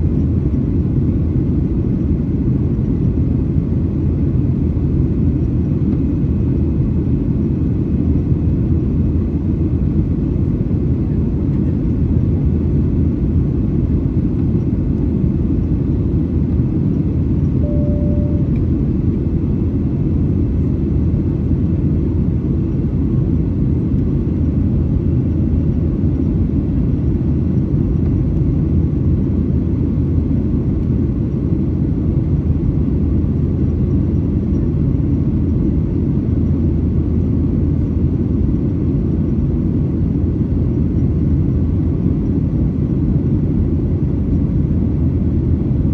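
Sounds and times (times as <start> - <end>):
airplane cabin rumble: 0.0 - 45.9
faint tone: 17.5 - 19.2.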